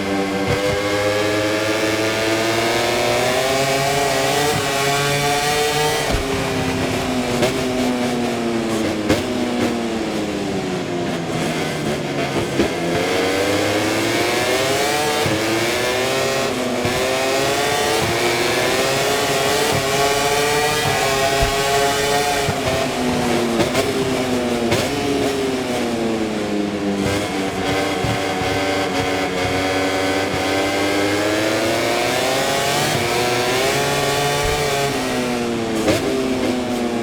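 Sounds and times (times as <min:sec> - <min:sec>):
racing motorcycle engine: 0:00.0 - 0:37.0.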